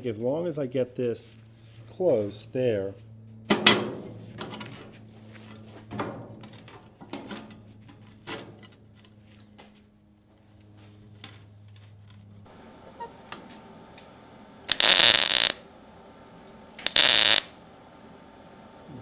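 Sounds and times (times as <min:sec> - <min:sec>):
welding bursts on sheet steel: 0:14.7 - 0:15.6, 0:16.8 - 0:17.5.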